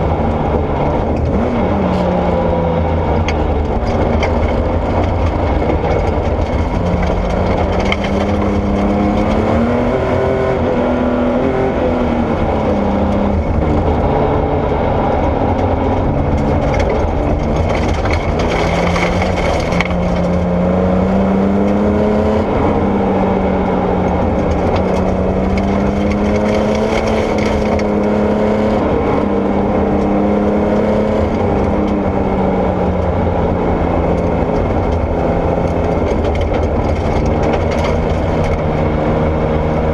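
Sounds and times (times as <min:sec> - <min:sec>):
rally car engine revving: 0:00.0 - 0:39.9
tyres on loose gravel: 0:16.1 - 0:20.4, 0:35.7 - 0:38.7.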